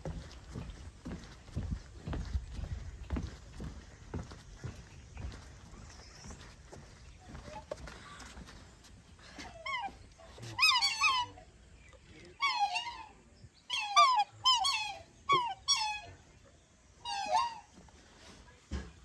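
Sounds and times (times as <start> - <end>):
animal giving short high calls: 9.5 - 11.4, 12.4 - 16.2, 17.0 - 17.7.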